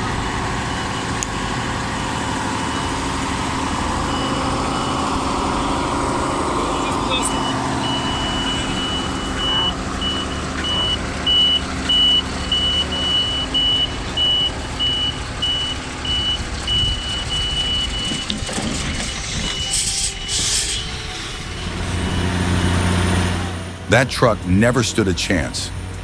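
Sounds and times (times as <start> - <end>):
truck engine running: 0.0 - 26.0
truck reversing alarm beeping: 0.0 - 26.0
short hisses: 19.7 - 20.9.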